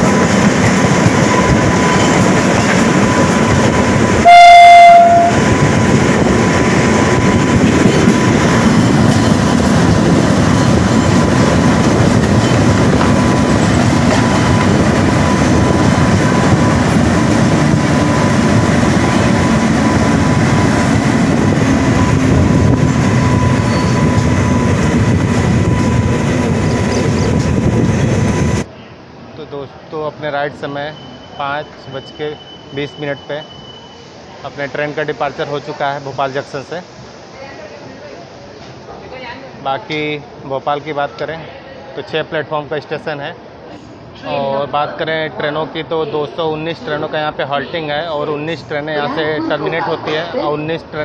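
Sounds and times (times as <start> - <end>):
train wheels rumbling and clattering: 0.0 - 4.3, 5.0 - 29.3, 37.8 - 39.2
short train horn blast: 4.2 - 5.5.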